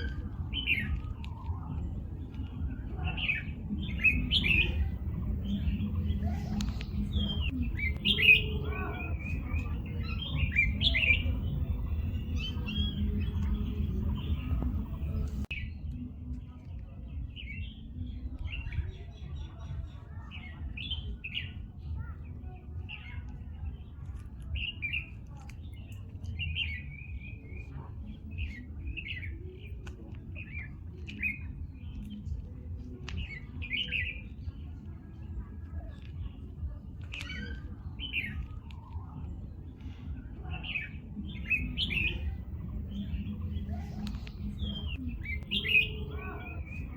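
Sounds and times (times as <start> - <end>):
low rumble: 0.0 - 15.5
birds chirping: 0.0 - 15.7, 17.1 - 46.9.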